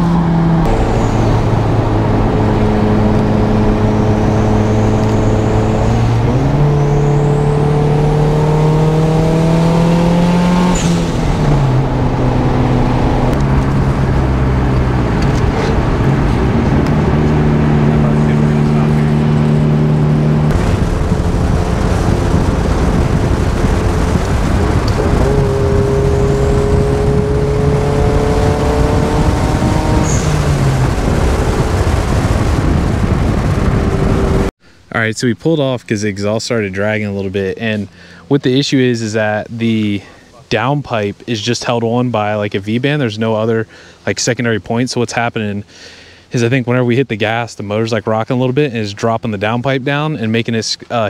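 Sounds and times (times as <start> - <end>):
car engine shifting gears: 0.0 - 34.6.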